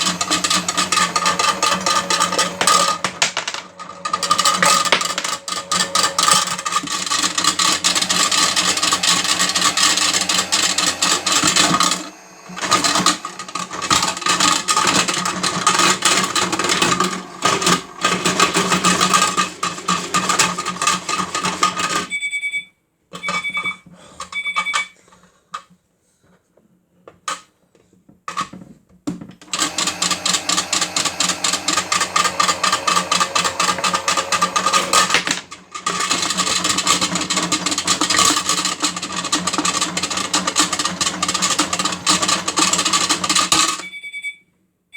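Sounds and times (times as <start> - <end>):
batteries clattering in toy drum: 32.6 - 43.9.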